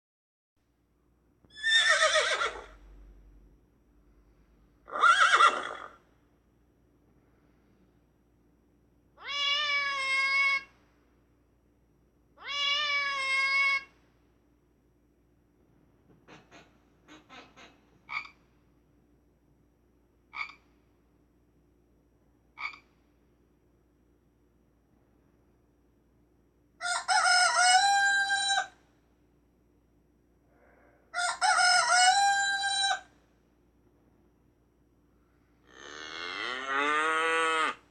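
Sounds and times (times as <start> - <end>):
horse whinnying: 1.5 - 2.8, 4.9 - 6.0
frog croaking: 18.1 - 18.4, 20.3 - 20.6, 22.6 - 22.9.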